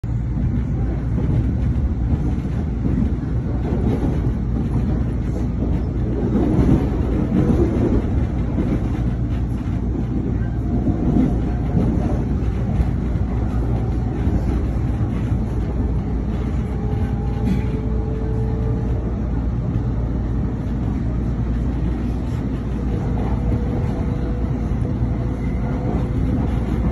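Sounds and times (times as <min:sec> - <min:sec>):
train wheels rumbling on rails: 0:00.0 - 0:26.9.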